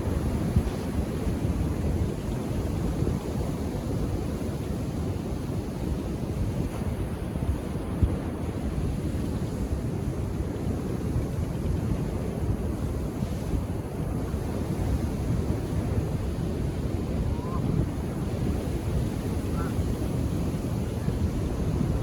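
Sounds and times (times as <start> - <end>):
wind buffeting microphone: 0.0 - 22.0
ocean surf washing onto beach: 12.2 - 22.0.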